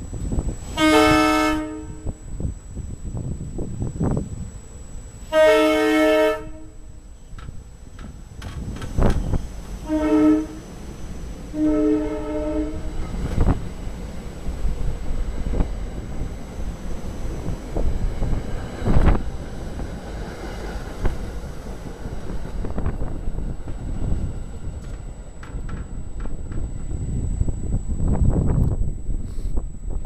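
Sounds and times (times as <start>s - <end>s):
train rumbling past: 0.0s - 30.0s
train air horn: 0.6s - 2.3s, 5.2s - 7.0s, 9.8s - 10.7s, 11.5s - 13.2s, 29.2s - 29.7s.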